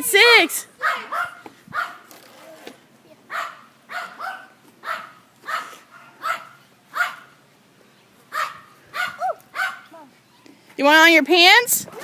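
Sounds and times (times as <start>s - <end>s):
dog barking: 0.8s - 2.0s, 3.3s - 7.3s, 8.3s - 9.9s.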